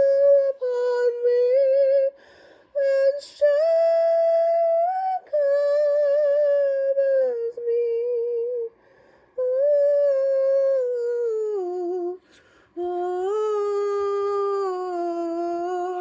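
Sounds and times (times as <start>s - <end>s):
woman breathing: 2.1s - 2.8s, 8.7s - 9.4s, 12.2s - 12.8s
woman singing wordless held notes: 9.4s - 16.0s.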